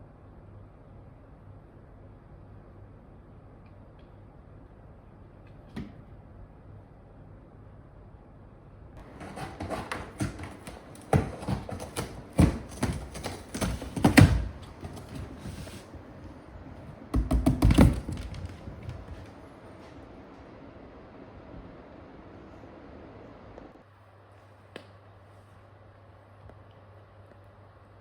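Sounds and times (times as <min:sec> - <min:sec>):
irregular taps and knocks: 0:09.0 - 0:15.8, 0:17.1 - 0:19.4.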